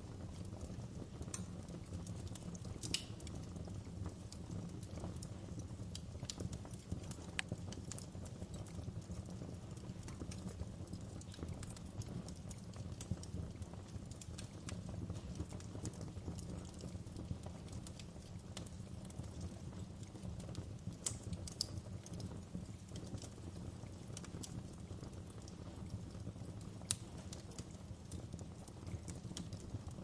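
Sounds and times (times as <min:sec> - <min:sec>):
fireplace fire crackling and popping: 0:00.0 - 0:30.0
low rumble of flames: 0:00.0 - 0:30.0.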